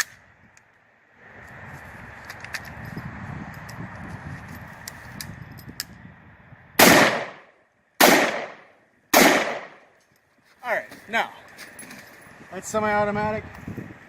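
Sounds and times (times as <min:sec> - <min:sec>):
rifle shots: 0:06.8 - 0:09.8.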